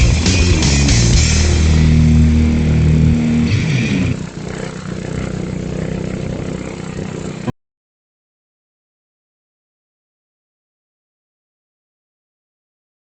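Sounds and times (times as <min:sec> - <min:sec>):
boat engine running: 0:00.0 - 0:07.5.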